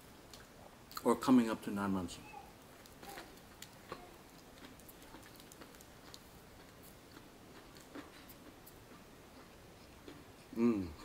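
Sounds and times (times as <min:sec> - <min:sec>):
chewing sandwich: 0:02.6 - 0:11.0
bread crust crunching: 0:02.7 - 0:08.9.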